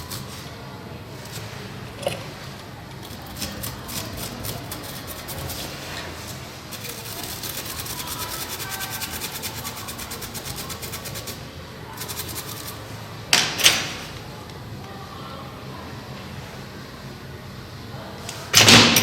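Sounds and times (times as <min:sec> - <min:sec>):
small brush scrubbing: 0:03.0 - 0:12.9.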